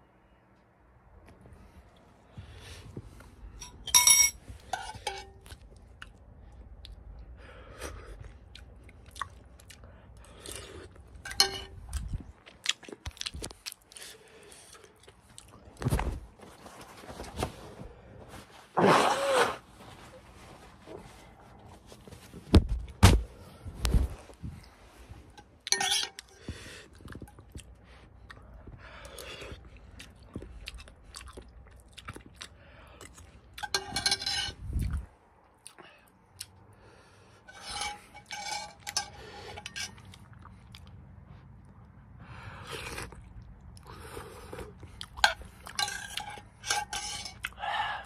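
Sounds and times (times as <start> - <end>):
person chewing noodles: 5.4 - 15.8, 26.2 - 33.7, 34.7 - 36.8, 38.7 - 46.6, 47.3 - 47.6.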